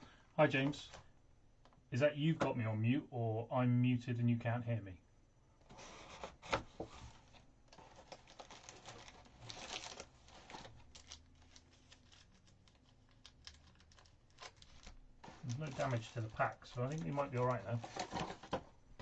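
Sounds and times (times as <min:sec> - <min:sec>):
cardboard handled: 0:05.7 - 0:18.7
wrapping tearing and crinkling: 0:07.0 - 0:18.7.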